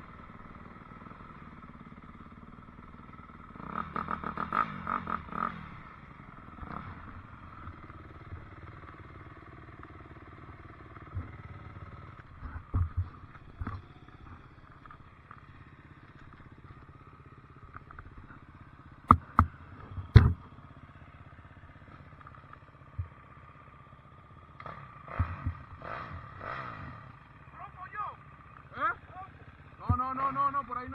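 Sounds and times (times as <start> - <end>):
dirt bike engine idling: 0.0 - 30.9
sharp knocks: 19.1 - 19.5, 20.1 - 20.4
dull thumps: 19.1 - 20.4.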